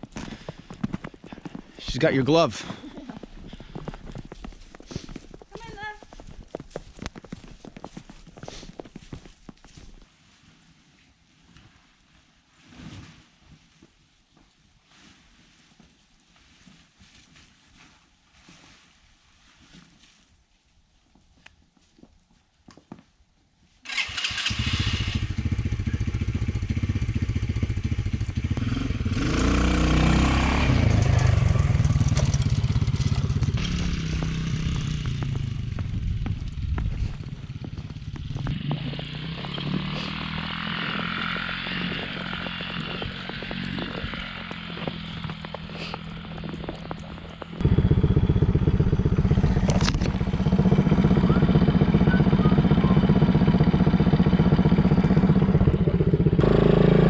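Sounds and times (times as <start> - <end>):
small atv engine revving: 23.9 - 36.4, 37.1 - 57.0.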